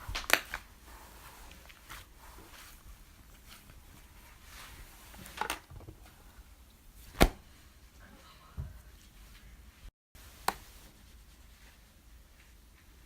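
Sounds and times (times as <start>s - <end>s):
clay slime handled by hand: 0.0s - 7.6s.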